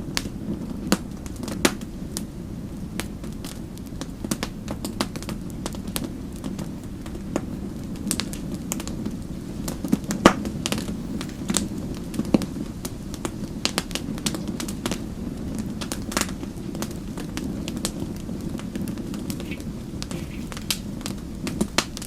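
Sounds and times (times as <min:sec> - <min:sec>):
fire crackling: 0:00.0 - 0:22.0.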